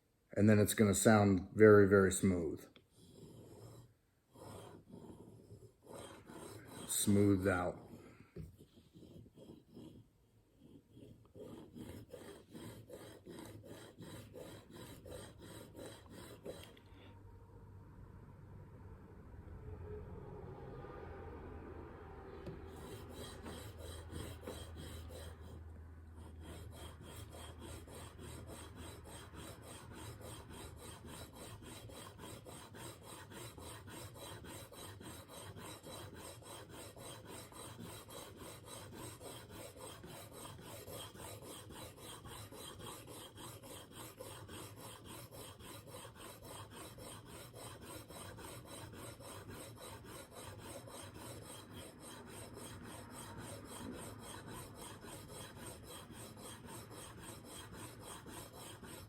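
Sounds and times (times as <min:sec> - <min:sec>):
blade rasping on sharpening plate: 0:26.3 - 0:59.0.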